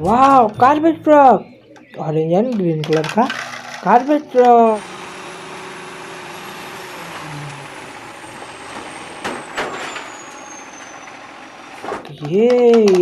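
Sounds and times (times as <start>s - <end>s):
garbage truck hiss: 4.7s - 12.0s.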